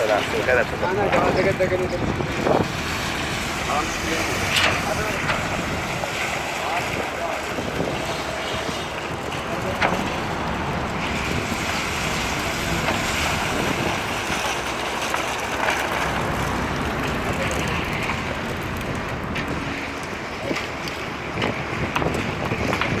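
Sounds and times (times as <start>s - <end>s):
wind on microphone: 0.0s - 15.1s, 16.0s - 23.0s.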